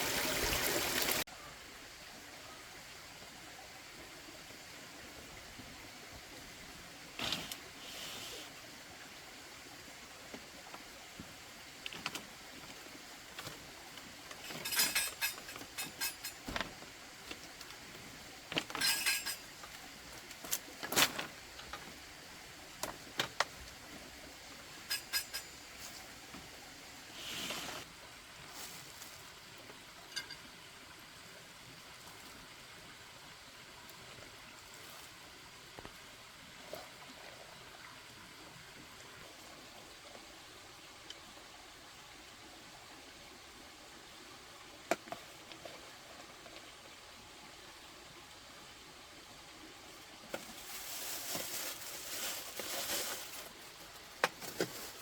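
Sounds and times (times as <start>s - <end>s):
faint steady background noise: 0.0s - 55.0s
clinks and knocks of objects: 14.3s - 16.8s, 18.5s - 19.8s, 24.8s - 25.7s.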